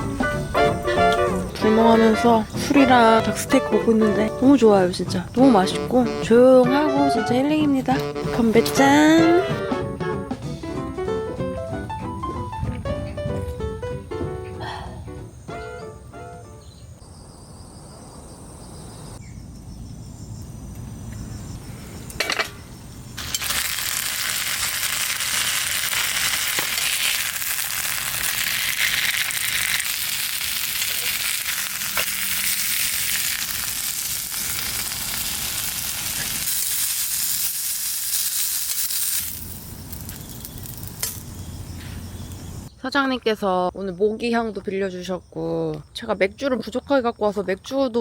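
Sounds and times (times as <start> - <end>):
loud steady hiss: 21.4 - 42.7.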